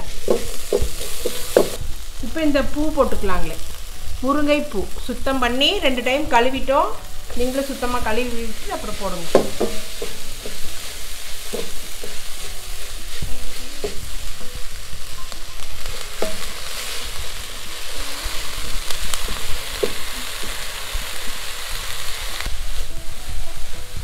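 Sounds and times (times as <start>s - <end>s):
food sizzling in a pan: 0.0s - 24.0s
spatula knocking against pan: 9.3s - 10.7s.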